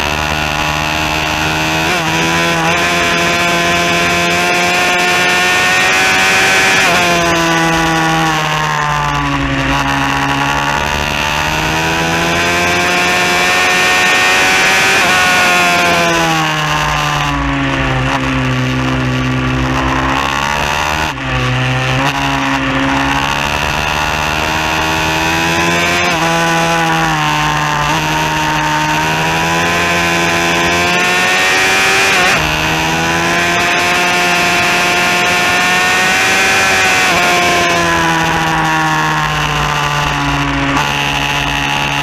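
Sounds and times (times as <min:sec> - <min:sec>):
pit bike engine revving: 0:00.0 - 0:42.0.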